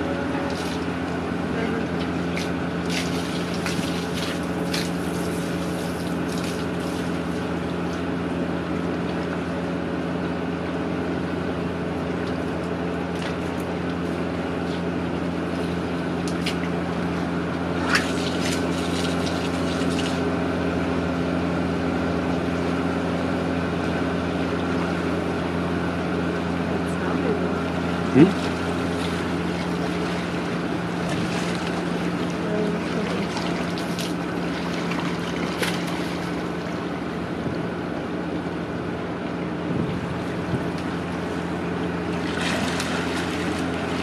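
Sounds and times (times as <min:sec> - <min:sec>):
rushing water: 0:00.0 - 0:07.9, 0:28.1 - 0:37.1, 0:42.0 - 0:44.0
motor hum: 0:00.0 - 0:44.0.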